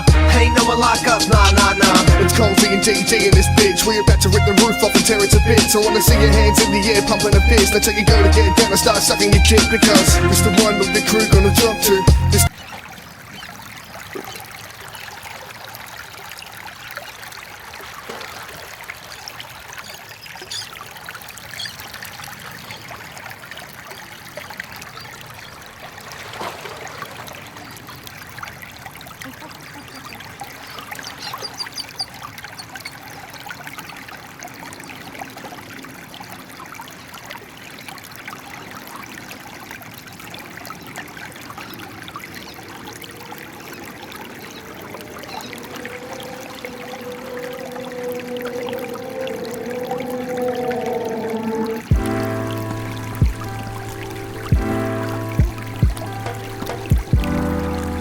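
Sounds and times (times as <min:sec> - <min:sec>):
stream water trickling: 0:00.0 - 0:58.0.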